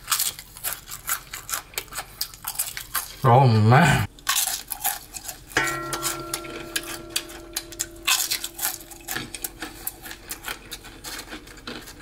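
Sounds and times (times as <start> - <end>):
potato chips crunching: 0.0 - 3.2, 4.2 - 5.6, 8.2 - 12.0.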